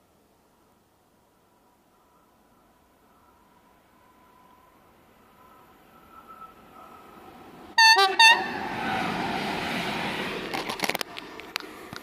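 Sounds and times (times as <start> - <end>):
train rushing past: 1.9 - 11.9
train horn blasts: 7.8 - 8.6.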